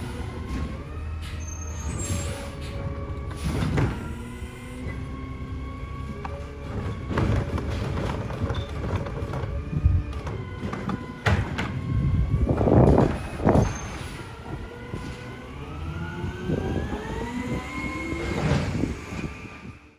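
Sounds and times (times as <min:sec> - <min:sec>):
garbage truck engine and machinery: 0:00.0 - 0:19.9
rising machine whine: 0:11.7 - 0:19.9.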